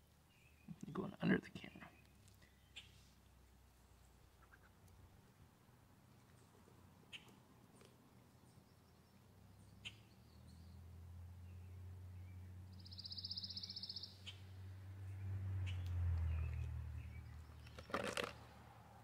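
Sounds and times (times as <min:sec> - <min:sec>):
bird chirps: 0:01.8 - 0:03.0, 0:08.3 - 0:18.0.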